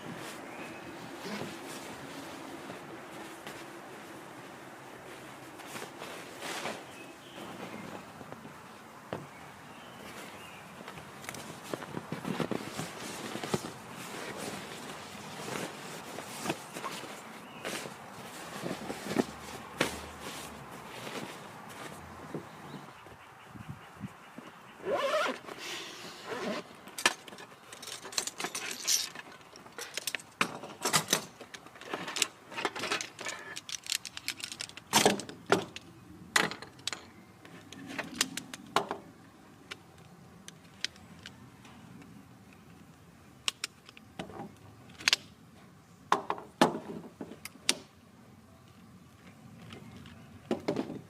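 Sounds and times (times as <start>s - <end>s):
rustling: 0.0s - 22.8s, 24.4s - 30.7s
objects clicking and clinking: 27.0s - 37.1s.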